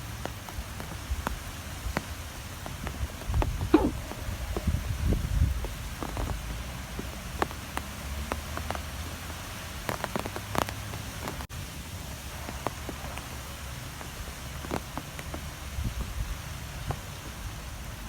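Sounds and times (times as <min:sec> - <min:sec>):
sharp ticks on a surface: 0:05.5 - 0:11.4.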